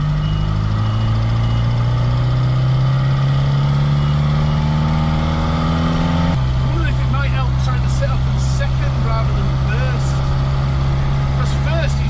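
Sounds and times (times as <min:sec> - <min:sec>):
faint high beep: 0:00.0 - 0:01.9, 0:03.9 - 0:04.8
car engine under load: 0:00.0 - 0:12.0.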